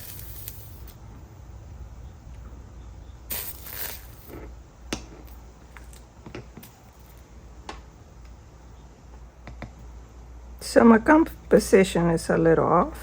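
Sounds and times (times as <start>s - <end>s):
steady low hum: 0.0s - 13.0s
brief hiss: 3.3s - 4.3s.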